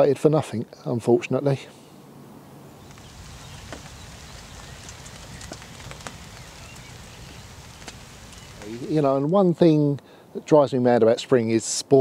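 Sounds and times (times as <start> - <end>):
steady rain: 2.7 - 9.4
raindrops ticking: 2.8 - 9.2.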